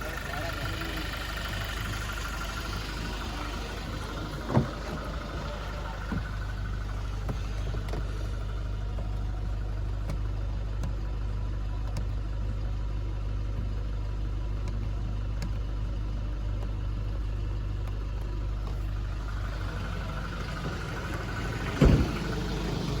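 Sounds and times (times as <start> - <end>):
car engine idling: 0.0 - 23.0
loud thump: 21.6 - 22.3.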